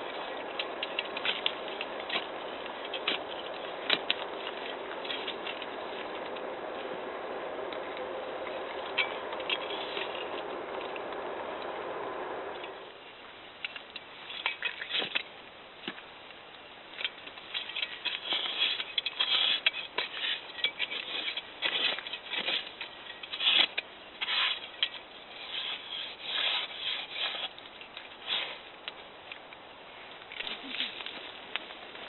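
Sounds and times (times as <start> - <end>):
scraping through sand: 18.2 - 27.6.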